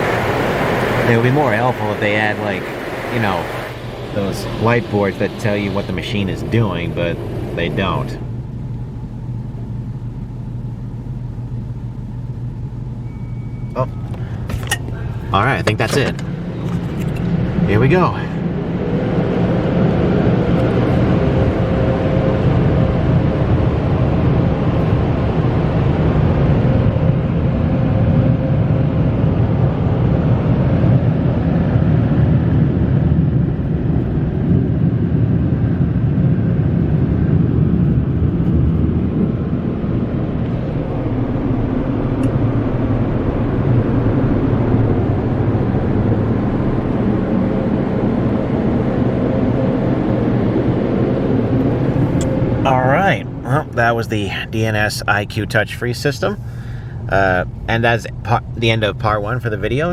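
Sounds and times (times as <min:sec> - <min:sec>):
air blowers with fan whine: 0:00.0 - 0:59.9.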